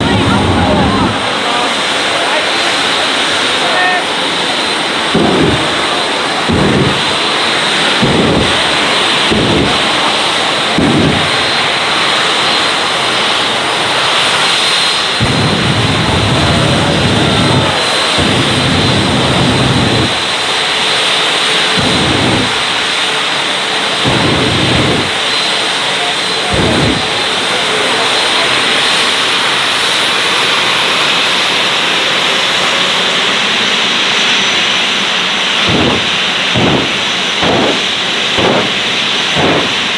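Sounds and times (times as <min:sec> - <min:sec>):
deep booming surges: 0:00.0 - 0:23.0, 0:24.0 - 0:25.6, 0:26.3 - 0:28.0, 0:35.5 - 0:39.9
jet engine running loudly: 0:00.0 - 0:39.9.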